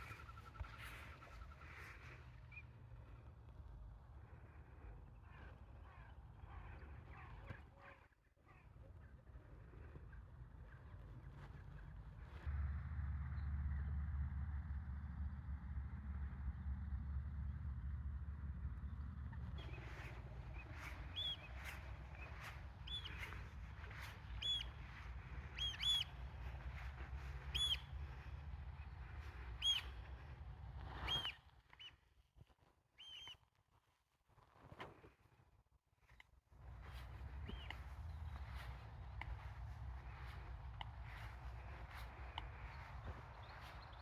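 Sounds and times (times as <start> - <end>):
low steady rumble: 10.1 - 31.4, 36.6 - 44.0.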